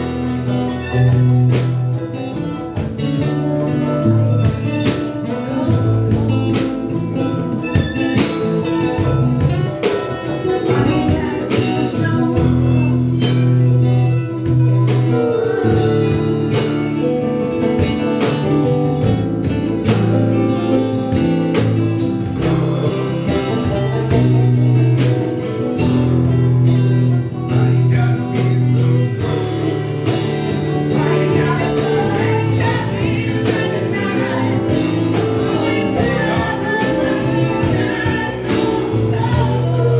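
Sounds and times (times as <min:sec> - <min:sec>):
bass notes: 0:00.0 - 0:39.9
guitar: 0:00.0 - 0:39.9
steady drum beat: 0:00.0 - 0:39.9.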